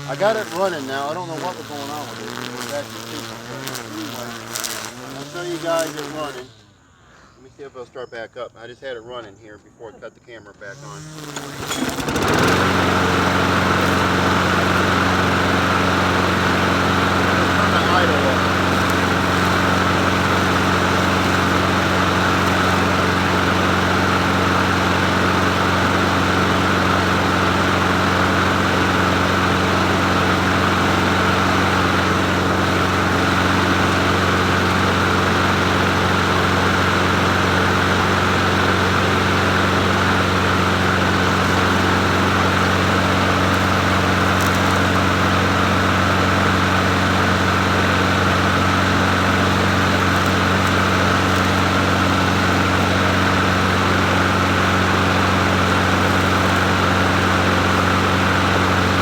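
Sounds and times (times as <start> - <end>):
push mower engine running: 0.0 - 6.8, 10.6 - 59.0.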